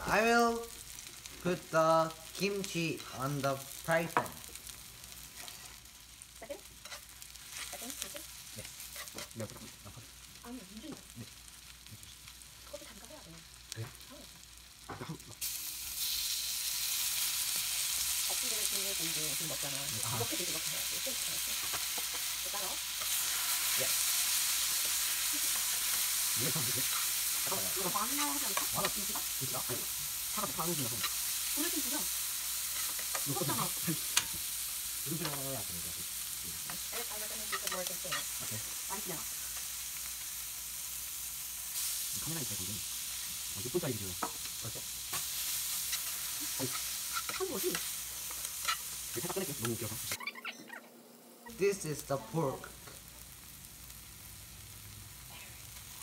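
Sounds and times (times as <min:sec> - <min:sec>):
vegetables sizzling in a pan: 0:00.0 - 0:50.6, 0:51.4 - 0:56.0
spatula stirring and scraping: 0:06.7 - 0:09.7, 0:20.0 - 0:34.6, 0:44.2 - 0:50.2.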